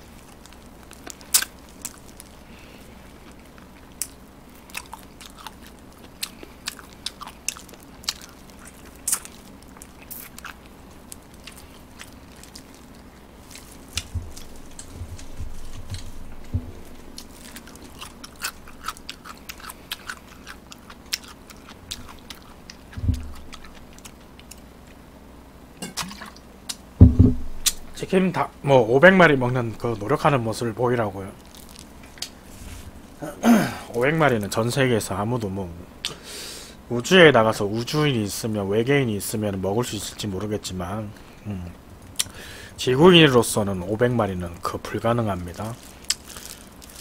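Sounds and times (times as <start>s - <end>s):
person chewing fried chicken: 0.0s - 25.0s, 31.4s - 33.2s, 45.4s - 47.0s
dull low thumps: 14.0s - 17.2s, 23.0s - 23.5s, 27.0s - 28.0s.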